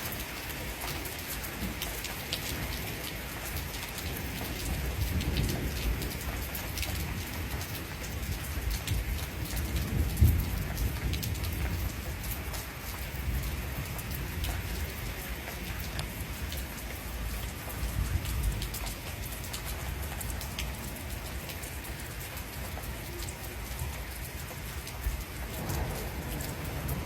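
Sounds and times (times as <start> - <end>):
heavy rain: 0.0 - 27.0
raindrops ticking close by: 0.0 - 27.0
low thunder rumble: 4.2 - 27.0.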